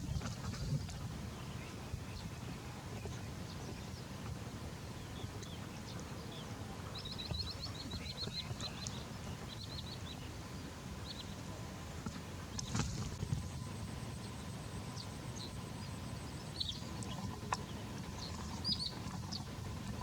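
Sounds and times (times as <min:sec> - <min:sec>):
low outdoor rumble: 0:00.0 - 0:20.0
bird chirping: 0:05.0 - 0:11.4, 0:14.1 - 0:20.0.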